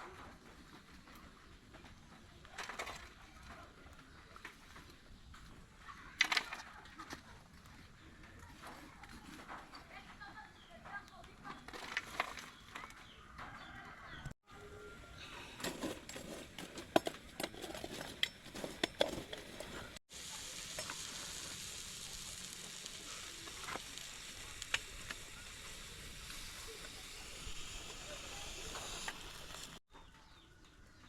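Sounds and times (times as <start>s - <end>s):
food sizzling in a pot: 20.0s - 29.8s.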